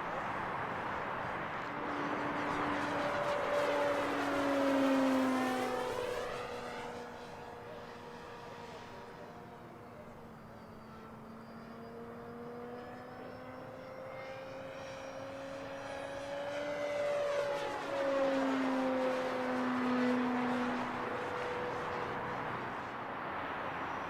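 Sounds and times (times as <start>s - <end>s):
model plane motor whine: 1.8s - 22.8s.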